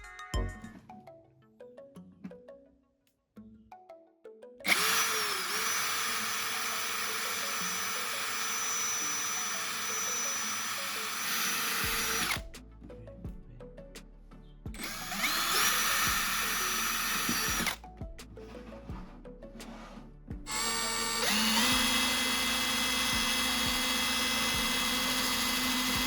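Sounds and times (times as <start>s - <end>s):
soft mallet music notes: 0.0s - 4.6s
electric power tool whining: 4.7s - 12.4s, 14.8s - 17.8s, 20.5s - 26.0s.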